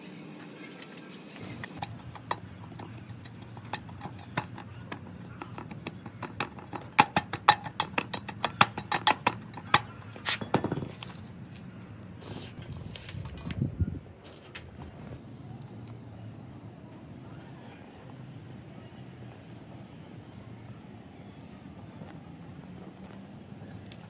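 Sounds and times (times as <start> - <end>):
tools tapping on metal: 1.8 - 11.2.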